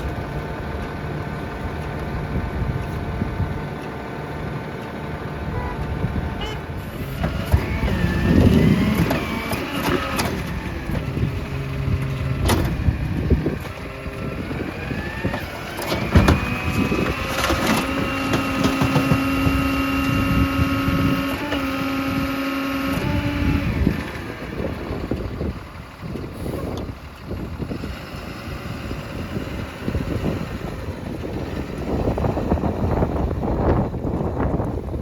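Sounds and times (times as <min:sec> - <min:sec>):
garbage truck engine revving: 0:00.0 - 0:34.1
hydraulic whine: 0:05.3 - 0:25.6.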